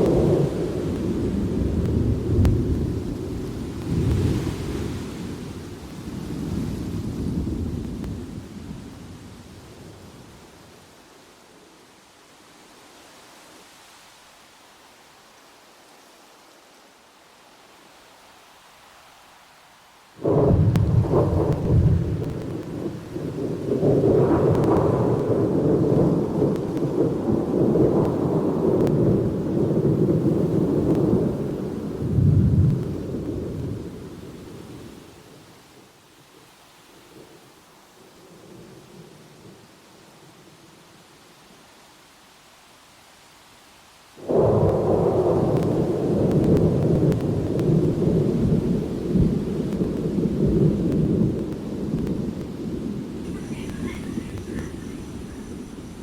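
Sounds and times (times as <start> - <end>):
rolling thunder: 0.0 - 8.9, 20.2 - 34.7, 44.2 - 56.0
faint hiss: 0.0 - 56.0
steady rain: 0.0 - 56.0.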